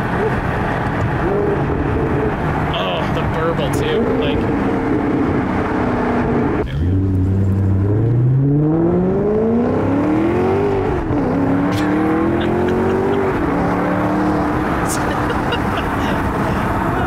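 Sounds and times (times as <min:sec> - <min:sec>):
car engine accelerating hard: 0:00.0 - 0:17.0.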